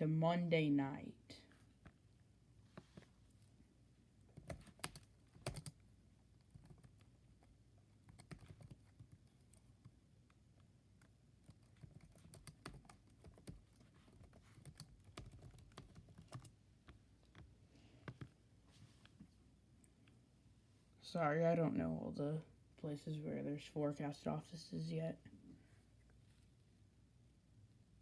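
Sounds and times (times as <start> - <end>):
typing on computer keyboard: 4.4 - 5.8, 6.5 - 7.1, 8.0 - 9.9, 11.0 - 16.6.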